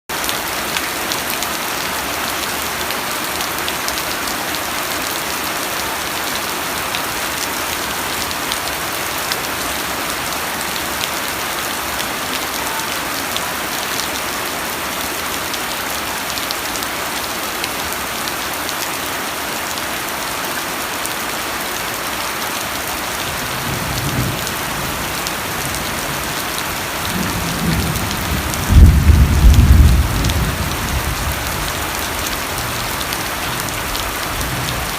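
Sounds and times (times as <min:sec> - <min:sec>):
steady rain hissing: 0:00.1 - 0:34.9
thunder rumbling: 0:27.1 - 0:31.8.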